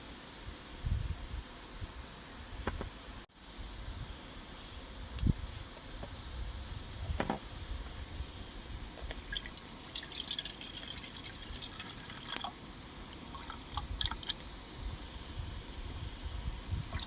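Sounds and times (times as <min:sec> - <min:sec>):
liquid dripping and trickling: 0:09.0 - 0:14.4.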